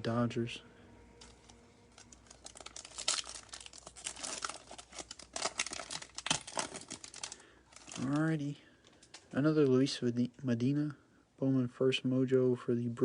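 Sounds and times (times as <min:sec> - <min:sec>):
foil wrapper crinkling and tearing: 0:01.2 - 0:09.3.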